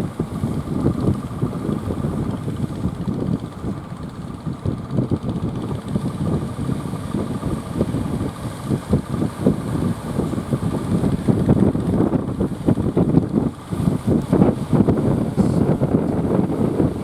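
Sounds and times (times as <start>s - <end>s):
faint engine hum: 0.0s - 17.0s
wind buffeting microphone: 0.0s - 17.0s.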